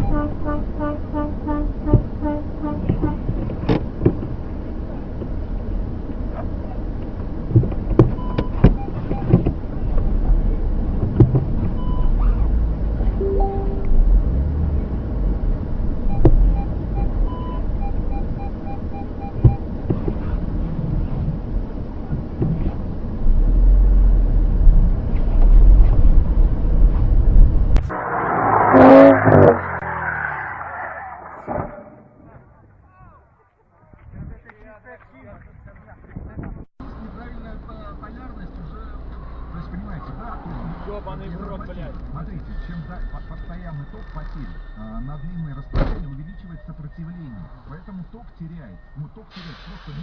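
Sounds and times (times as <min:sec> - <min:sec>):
brief pitched tone: 0:00.0 - 0:02.8, 0:13.2 - 0:14.2
short beeps: 0:00.0 - 0:02.8, 0:13.2 - 0:14.1, 0:16.1 - 0:19.6
car road and engine rumble: 0:00.0 - 0:32.8, 0:36.1 - 0:50.0.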